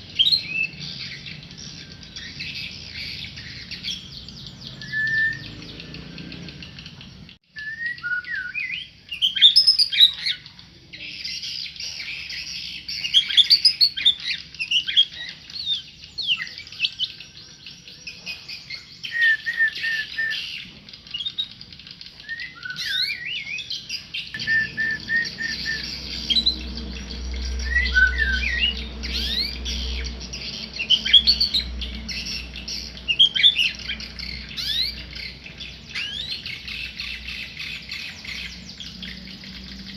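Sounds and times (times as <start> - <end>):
songbird singing whistled phrases: 0.0 - 39.9
low hum: 24.4 - 36.1.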